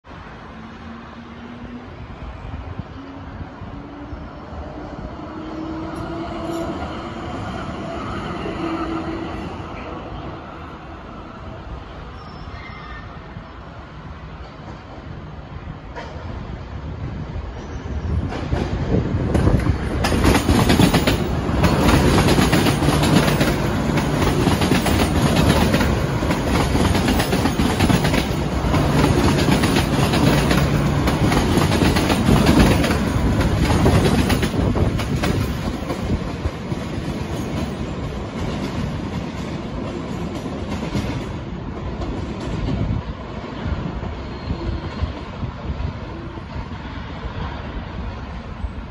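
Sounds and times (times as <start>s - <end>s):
train wheels clacking on rails: 17.5s - 43.1s.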